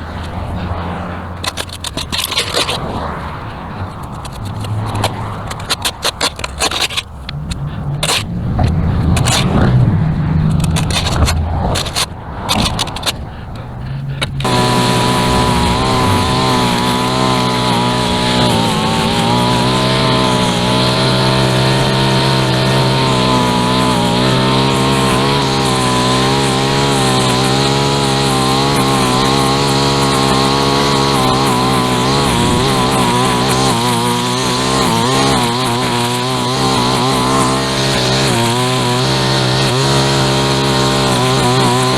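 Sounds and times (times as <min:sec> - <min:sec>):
string trimmer at full throttle: 0:00.0 - 0:13.4, 0:14.2 - 0:41.9
scraping and knocking: 0:00.0 - 0:26.8.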